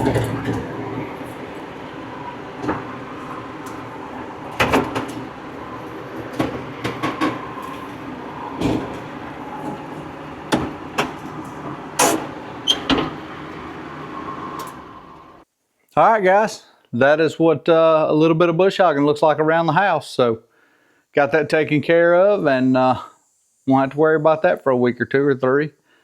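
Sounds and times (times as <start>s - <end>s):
sharp clunks and rattles: 0.0s - 15.4s
tractor engine running: 0.0s - 15.4s.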